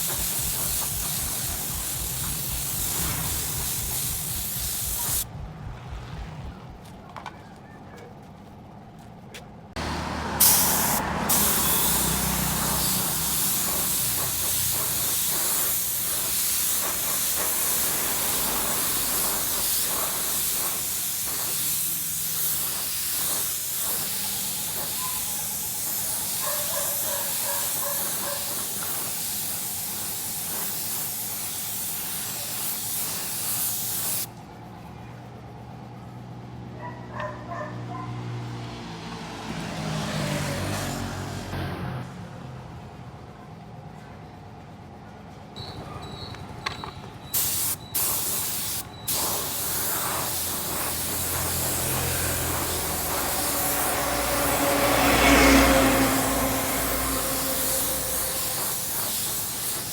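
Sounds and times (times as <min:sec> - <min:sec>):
paint spray gun hissing: 0:00.0 - 0:05.3, 0:10.4 - 0:34.3, 0:46.7 - 0:59.9.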